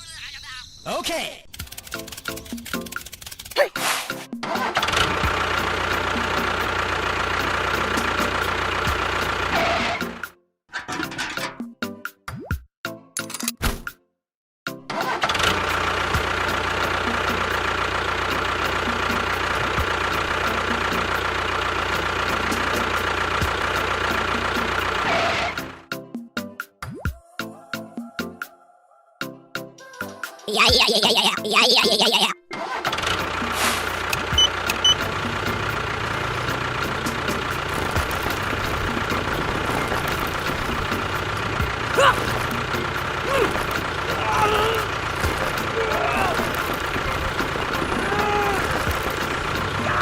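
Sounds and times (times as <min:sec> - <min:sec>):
small motor whining and rattling: 0:01.5 - 0:03.6, 0:32.9 - 0:49.8.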